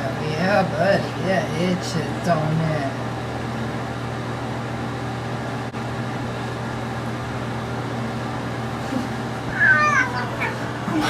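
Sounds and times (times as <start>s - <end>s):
cat meowing: 9.5s - 10.7s.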